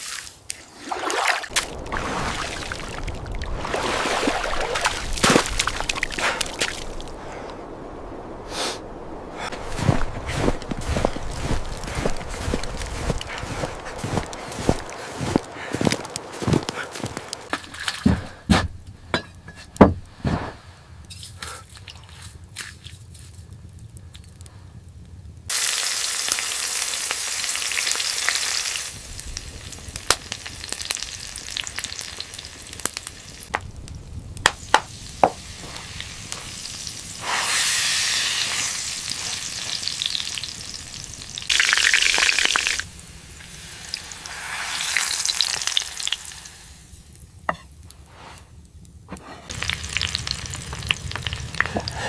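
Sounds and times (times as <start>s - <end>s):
sharp pops and crackles: 0.4s - 7.6s, 9.4s - 20.2s, 28.9s - 52.0s
meat sizzling over a fire: 9.4s - 17.5s, 25.5s - 47.4s, 49.5s - 52.0s.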